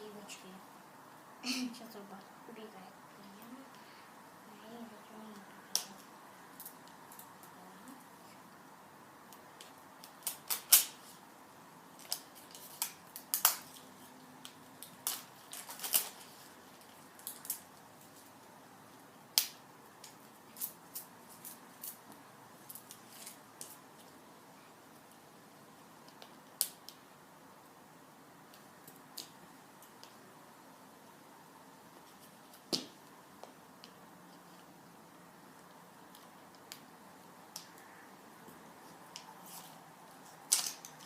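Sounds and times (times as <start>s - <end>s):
packaging crackling and tearing: 10.0s - 11.0s, 14.8s - 18.2s.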